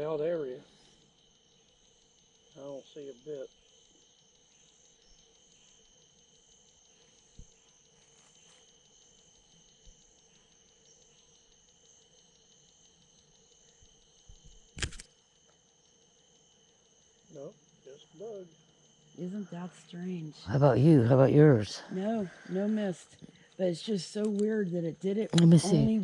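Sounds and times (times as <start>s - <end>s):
crickets chirping: 0.0s - 26.0s
sharp click: 14.4s - 15.1s.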